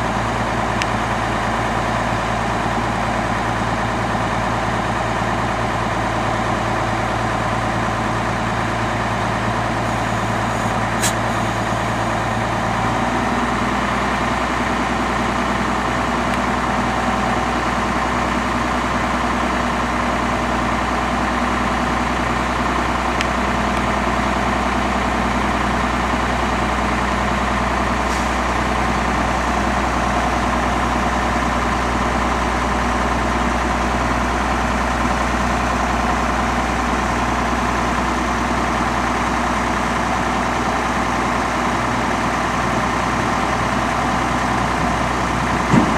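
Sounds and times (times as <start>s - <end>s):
truck engine idling: 0.0s - 45.9s.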